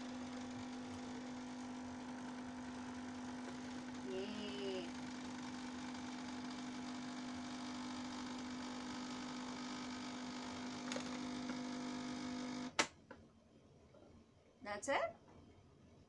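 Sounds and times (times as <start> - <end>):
capsule machine pump humming: 0.0 - 12.6.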